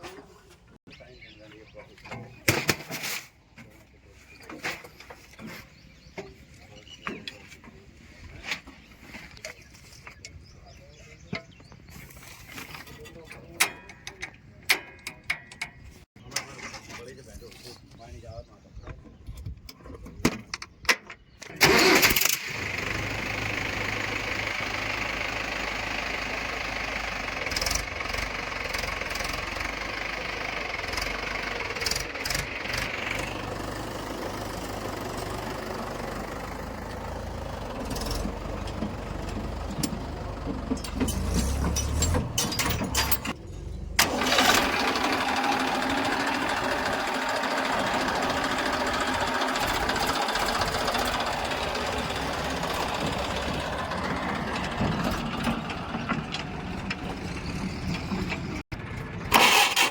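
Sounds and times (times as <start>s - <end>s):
diesel engine running: 21.6s - 59.9s.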